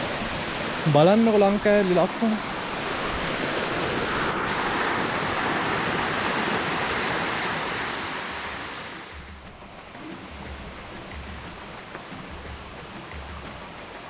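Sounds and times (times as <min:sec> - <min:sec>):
waterfall splashing into pool: 0:04.5 - 0:09.5.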